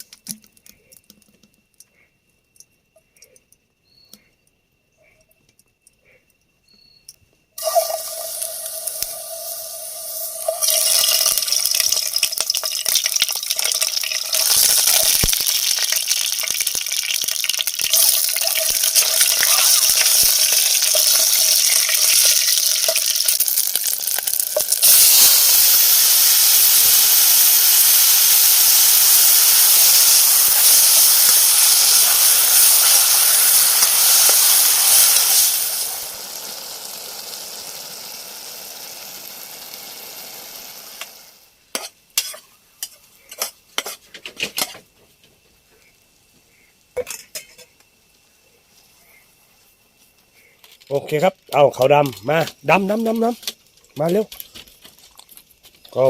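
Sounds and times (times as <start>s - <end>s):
food sizzling in a hot pan: 7.6s - 44.0s.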